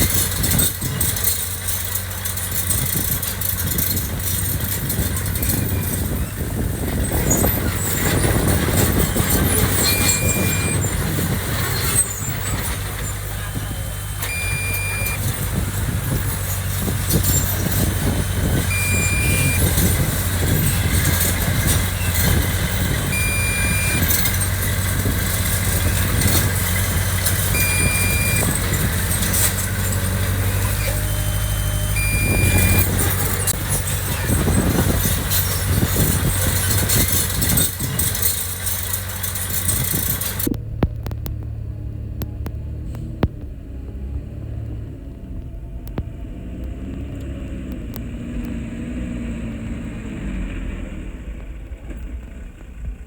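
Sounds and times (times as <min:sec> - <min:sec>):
metal clanks: 0:00.0 - 0:41.3
heavy machine engine droning: 0:00.0 - 0:53.0
warning alarm beeps: 0:09.7 - 0:11.0, 0:13.9 - 0:15.5, 0:18.7 - 0:20.0, 0:21.6 - 0:24.4, 0:27.4 - 0:29.5, 0:30.7 - 0:33.5.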